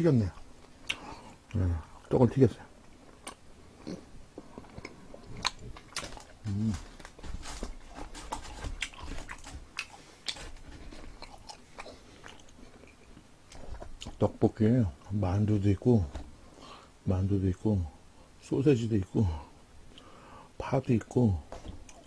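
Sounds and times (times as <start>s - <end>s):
crunching crispy fried food: 3.0s - 14.3s
short low voice: 6.4s - 6.8s.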